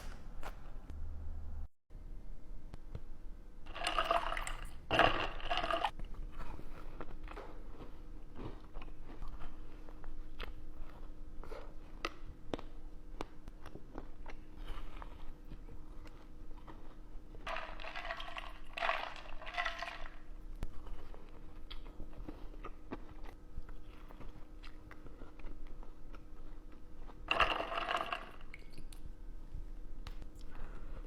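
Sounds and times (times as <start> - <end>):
mouth clicks and chewing: 20.6 - 27.3.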